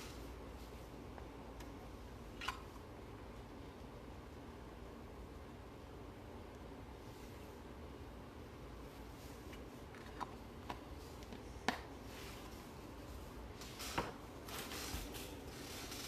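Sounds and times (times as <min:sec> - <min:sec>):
rustling: 0:11.0 - 0:16.0.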